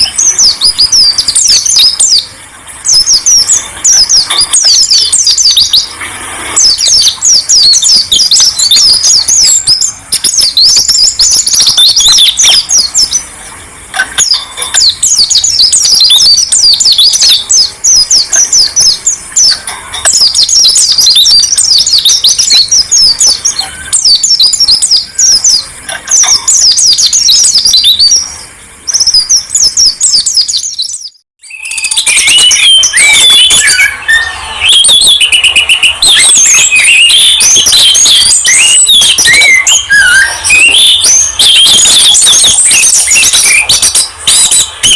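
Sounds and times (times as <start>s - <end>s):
bird whistling lower notes: 0.0s - 5.9s, 6.5s - 13.3s, 14.0s - 44.9s
songbird high chirping: 0.0s - 6.0s, 6.6s - 44.9s.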